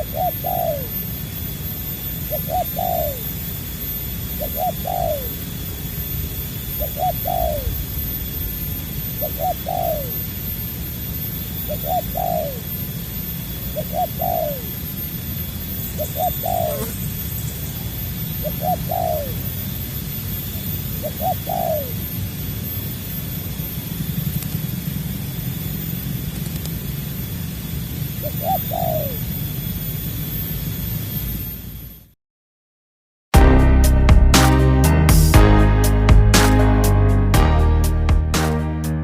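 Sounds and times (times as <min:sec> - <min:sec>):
dove cooing: 0:00.0 - 0:01.0, 0:02.3 - 0:03.3, 0:04.4 - 0:05.4, 0:06.8 - 0:07.8, 0:09.2 - 0:10.2, 0:11.7 - 0:12.7, 0:13.8 - 0:14.7, 0:16.0 - 0:17.0, 0:18.4 - 0:19.4, 0:21.0 - 0:22.0, 0:28.2 - 0:29.2
steady low rumble: 0:33.4 - 0:39.0.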